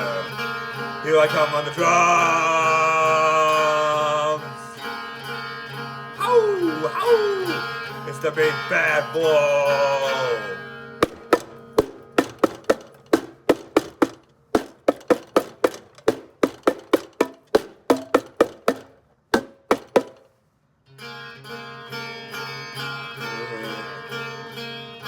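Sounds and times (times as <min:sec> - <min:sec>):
drum hits: 0:11.0 - 0:20.3.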